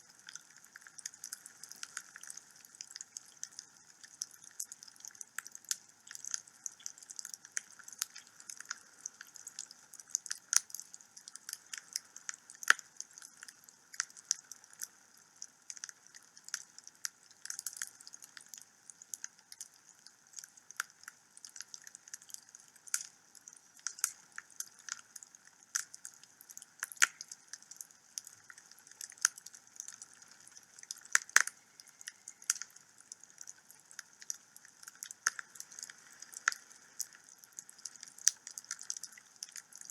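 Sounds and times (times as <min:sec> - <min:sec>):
wood fire crackling and popping: 0:26.6 - 0:27.3, 0:28.2 - 0:39.9.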